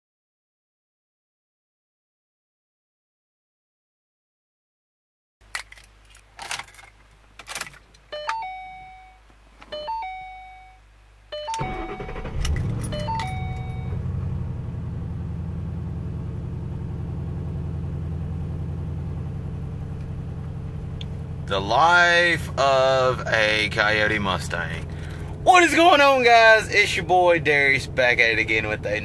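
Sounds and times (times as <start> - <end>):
car two-note warning chime: 8.1 - 14.1
car engine starting and idling: 11.4 - 29.0.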